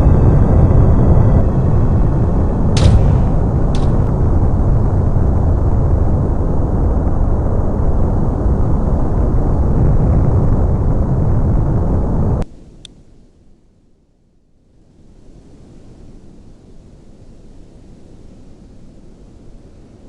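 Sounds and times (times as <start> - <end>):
large aircraft engine rumble: 0.0 - 12.4.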